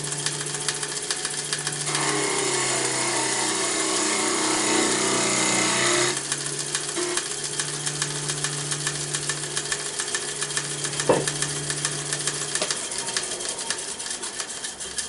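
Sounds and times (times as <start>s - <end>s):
lathe motor hum: 0.0s - 15.0s
turning tool cutting spinning wood: 0.0s - 15.0s
sharp knock: 11.0s - 11.3s.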